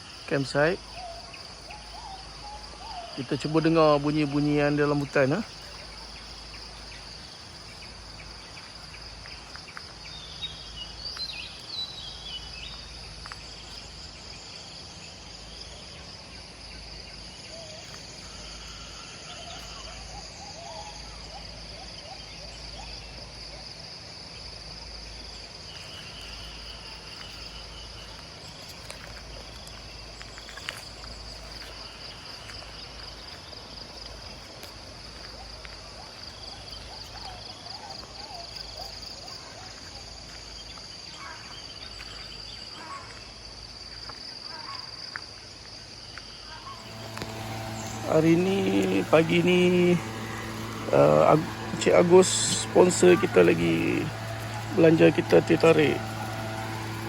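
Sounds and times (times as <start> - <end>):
insects chorus: 0.0 - 57.0
bird chirps: 0.6 - 16.1.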